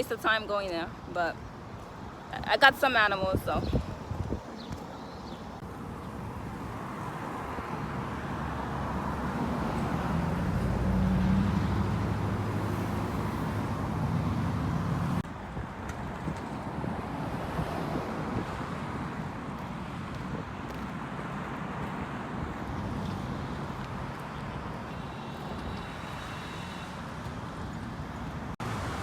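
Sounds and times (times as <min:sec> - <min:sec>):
road traffic noise: 0:00.0 - 0:29.0
motor vehicle passing close: 0:08.6 - 0:15.2.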